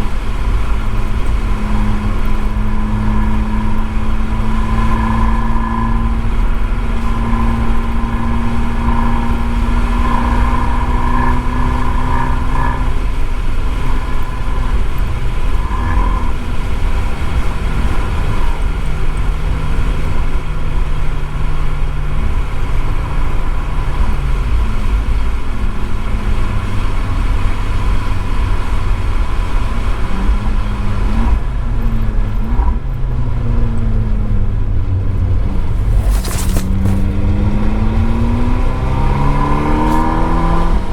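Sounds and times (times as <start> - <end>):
car engine: 0.0 - 40.9
tyre and road noise hiss: 35.4 - 40.9.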